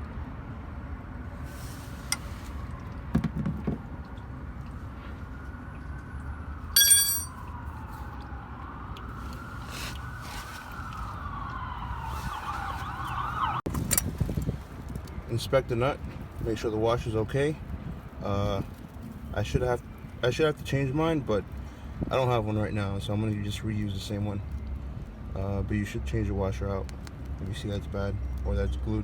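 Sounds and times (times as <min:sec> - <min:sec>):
metallic clink: 0:06.8 - 0:07.4
emergency siren wailing and yelping: 0:07.8 - 0:13.7.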